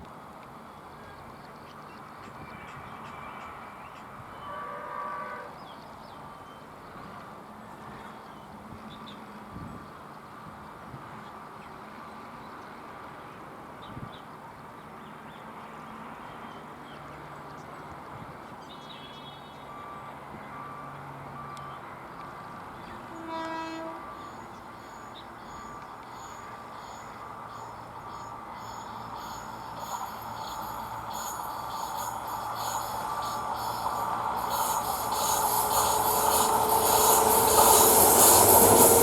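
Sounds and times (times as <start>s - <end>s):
train horn blast: 4.3s - 5.6s, 23.0s - 24.5s
train rumbling: 22.6s - 39.0s.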